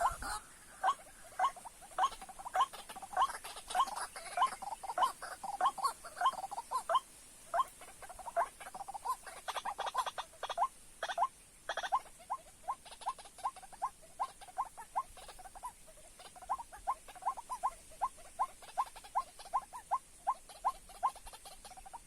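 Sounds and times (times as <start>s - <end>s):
waterhen calling: 0.0s - 22.0s.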